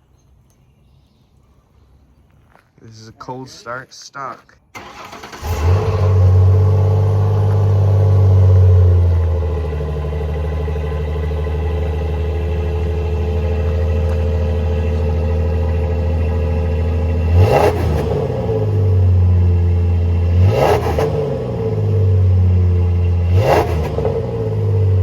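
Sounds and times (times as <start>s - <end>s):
truck engine idling: 4.8s - 17.4s, 18.2s - 20.3s.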